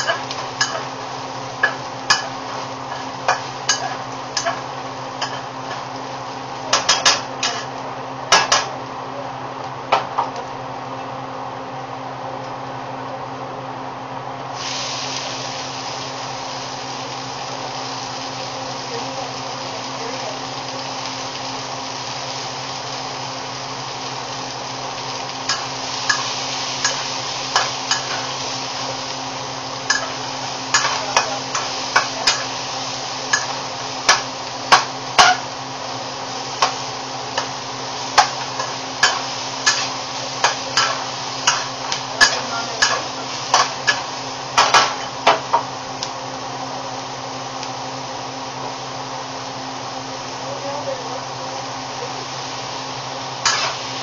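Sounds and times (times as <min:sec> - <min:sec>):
onions sizzling in hot oil: 0:00.0 - 0:54.0
spatula scraping a wok: 0:01.6 - 0:05.9, 0:29.9 - 0:32.6, 0:37.4 - 0:45.2, 0:53.4 - 0:54.0.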